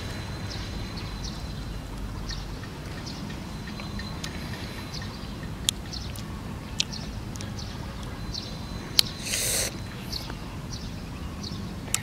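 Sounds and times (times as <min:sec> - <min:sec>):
man chewing with mouth clicks: 0:09.0 - 0:09.8
breathy hiss: 0:09.1 - 0:10.0.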